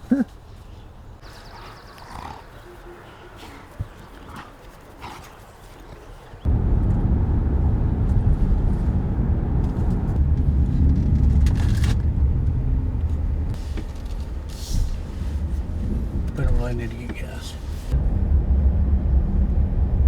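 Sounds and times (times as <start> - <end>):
car driving on road: 6.4 - 20.0.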